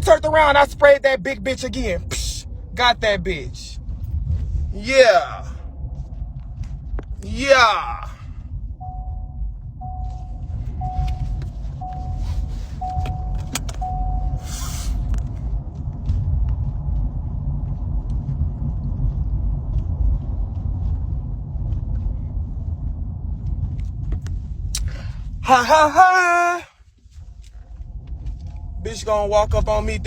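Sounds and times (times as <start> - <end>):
car driving rumble inside cabin: 0.0 - 30.0
short electronic beeps: 8.8 - 15.1.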